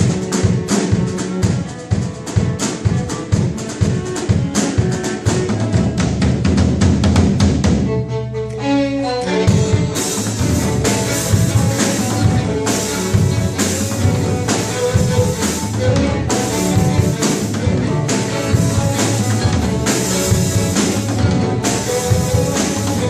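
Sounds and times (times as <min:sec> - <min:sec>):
drum beat: 0:00.0 - 0:08.0, 0:09.5 - 0:23.0
bowed strings: 0:07.6 - 0:23.0.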